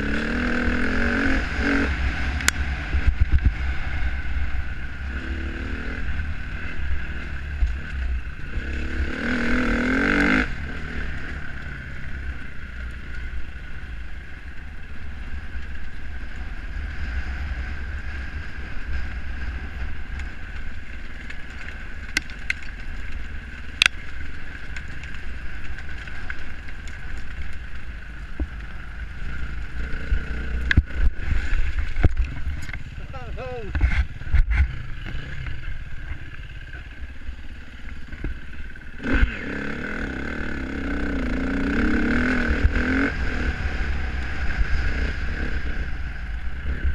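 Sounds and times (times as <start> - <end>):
dirt bike engine revving: 0.0 - 12.3, 29.2 - 46.9.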